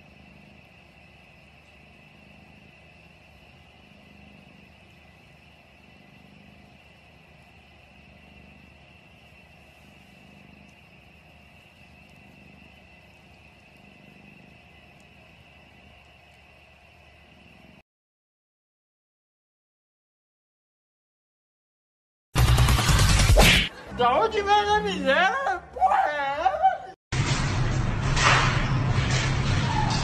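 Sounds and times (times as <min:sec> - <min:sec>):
cat purring: 0:00.0 - 0:17.8.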